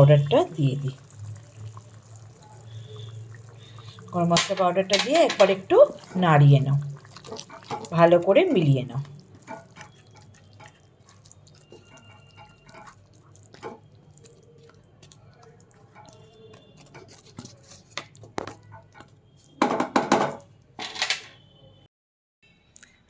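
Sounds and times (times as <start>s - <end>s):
spoon stirring in metal pan: 0.1s - 21.0s
utensil clattering on metal: 4.4s - 5.6s.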